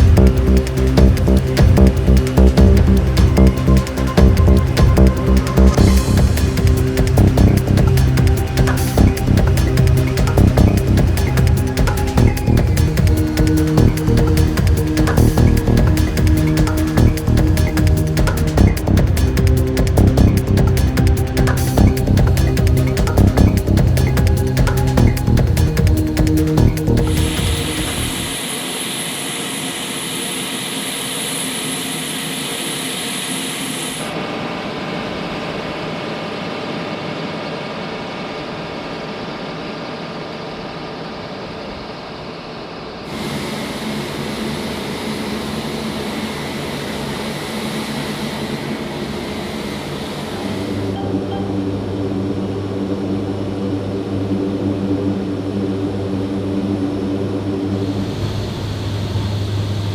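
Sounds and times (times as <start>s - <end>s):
strong low hum: 0.0s - 28.4s, 50.3s - 59.9s
turbine engine whine and rumble: 0.0s - 59.9s.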